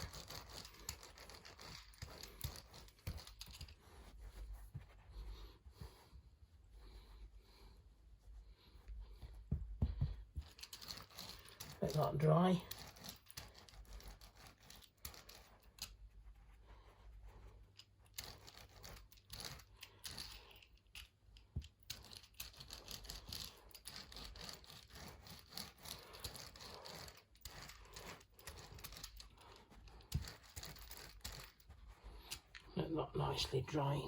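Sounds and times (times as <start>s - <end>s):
scraping on carpet: 0.0s - 11.8s.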